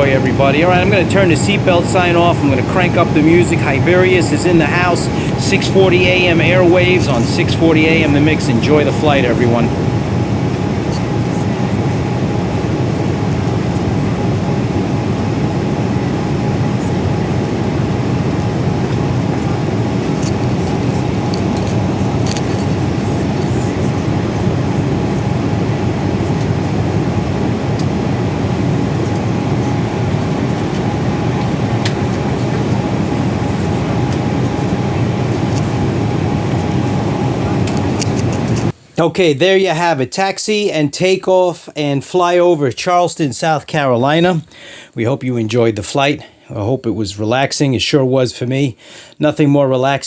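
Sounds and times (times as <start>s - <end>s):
engine and rushing air drone: 0.0s - 38.8s.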